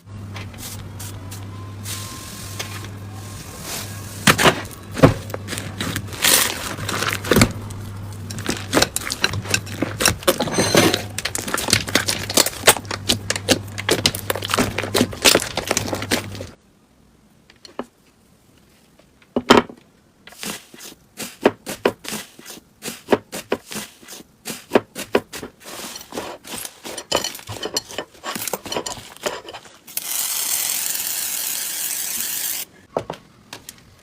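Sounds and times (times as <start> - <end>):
slime crackling and popping: 11.2 - 16.5.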